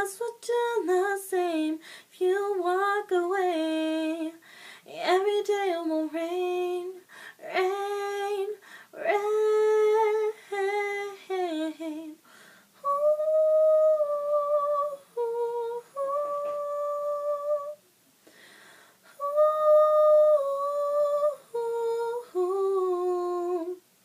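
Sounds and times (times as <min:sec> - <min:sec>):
woman humming a melody: 0:12.8 - 0:17.8.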